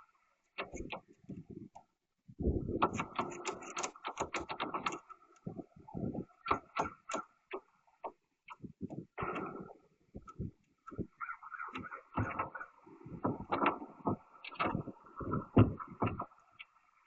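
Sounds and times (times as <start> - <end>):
rapid knocking and clattering: 6.4 - 7.2.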